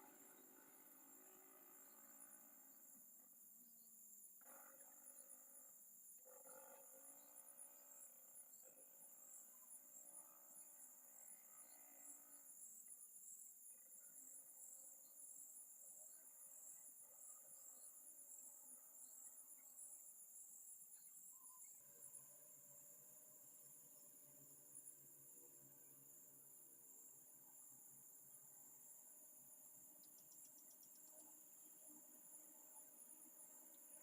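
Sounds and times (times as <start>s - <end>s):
crickets chirring: 8.0s - 34.0s.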